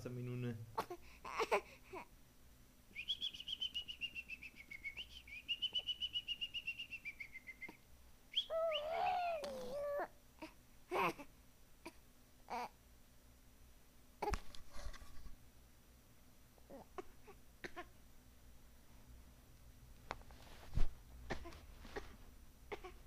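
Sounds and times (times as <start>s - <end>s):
bird trilling: 8.4s - 9.5s
girl whining cry: 8.5s - 10.1s.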